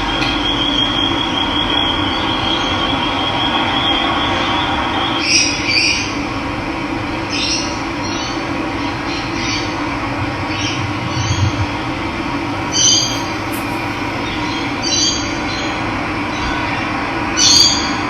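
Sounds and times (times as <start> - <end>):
running water rushing: 12.6 - 14.8.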